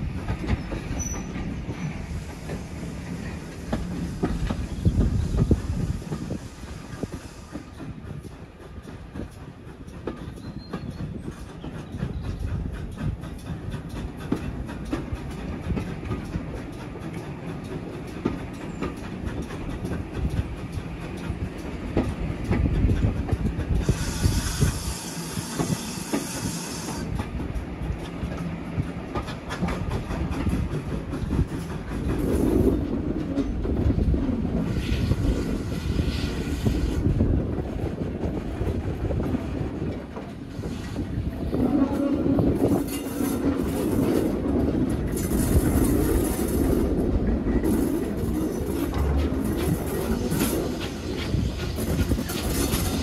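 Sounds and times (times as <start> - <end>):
train wheels clattering over rail joints: 0.0 - 53.0
hiss: 1.1 - 8.6, 22.8 - 27.3, 34.6 - 37.2, 47.6 - 53.0.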